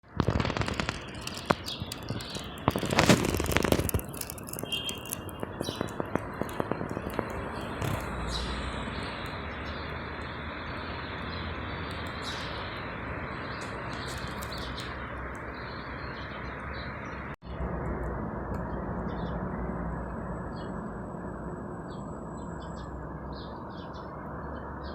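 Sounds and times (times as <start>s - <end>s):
city traffic hum: 0.0s - 24.9s
small birds chirping: 0.2s - 17.6s, 18.6s - 24.9s.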